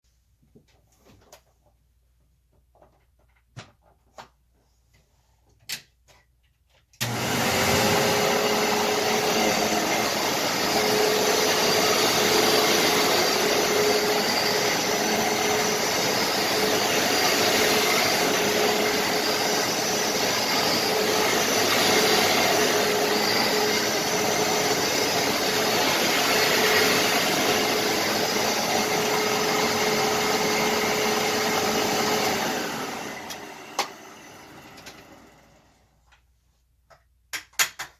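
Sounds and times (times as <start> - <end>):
vacuum cleaner running: 7.0 - 36.0.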